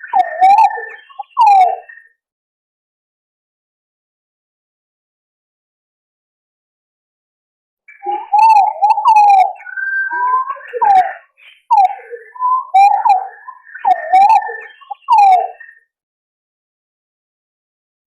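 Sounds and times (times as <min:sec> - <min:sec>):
pigeons whistling calls: 0:00.0 - 0:01.9, 0:07.9 - 0:15.7.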